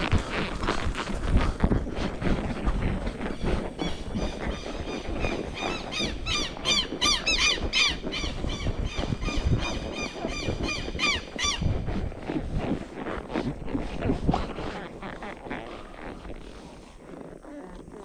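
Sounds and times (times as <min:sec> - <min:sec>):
horse walking on a trail: 0:00.0 - 0:18.0
bird calling: 0:03.3 - 0:11.7.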